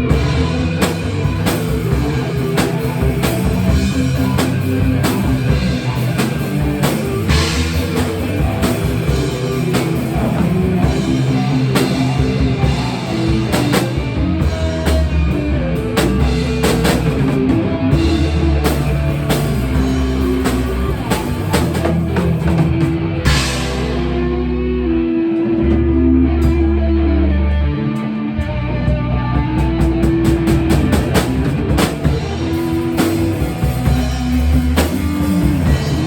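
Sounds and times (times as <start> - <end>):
rock music with drums and guitar: 0.0 - 36.0.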